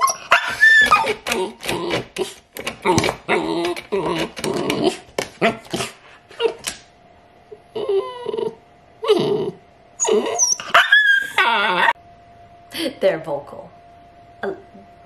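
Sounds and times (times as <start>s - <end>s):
puppy yipping and whining: 0.0s - 1.3s, 6.3s - 6.6s, 7.7s - 12.0s.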